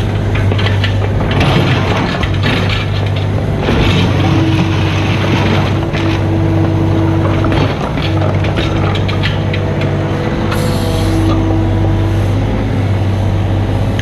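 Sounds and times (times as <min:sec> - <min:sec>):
scraping and clattering: 0:00.0 - 0:12.0
diesel engine humming: 0:00.0 - 0:14.0
high whine: 0:03.3 - 0:14.0.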